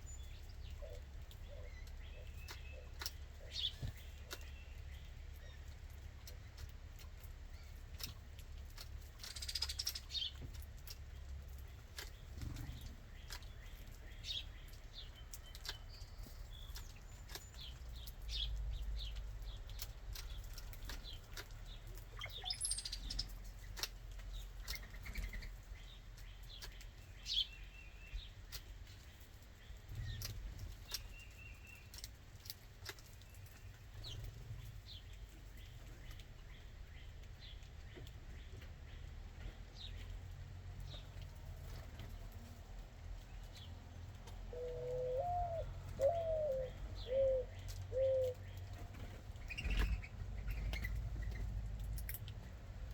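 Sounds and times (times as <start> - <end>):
songbirds chirping: 0.0 - 52.9
wings fluttering: 48.6 - 52.1.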